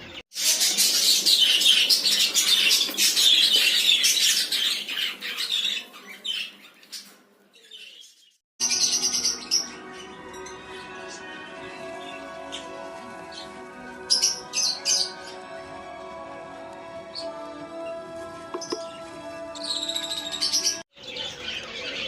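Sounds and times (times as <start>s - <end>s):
high-pitched bird sound: 0.0s - 11.0s, 19.6s - 22.0s.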